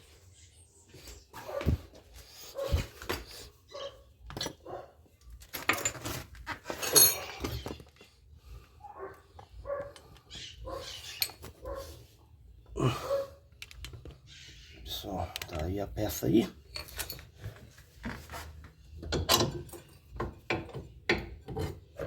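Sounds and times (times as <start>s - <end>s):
dog barking: 1.4s - 1.8s, 2.5s - 2.8s, 3.7s - 5.0s, 8.8s - 10.0s, 10.6s - 11.0s, 11.6s - 12.0s, 13.0s - 13.4s
metallic clinks of tools: 6.7s - 7.7s.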